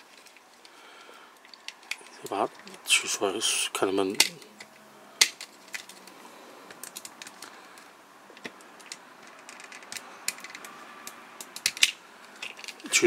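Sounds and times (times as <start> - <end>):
plastic toy clicking: 8.8 - 12.9.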